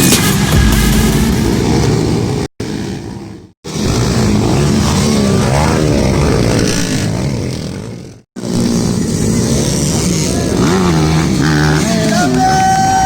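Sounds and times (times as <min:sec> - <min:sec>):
motocross bikes revving: 0:01.5 - 0:13.0.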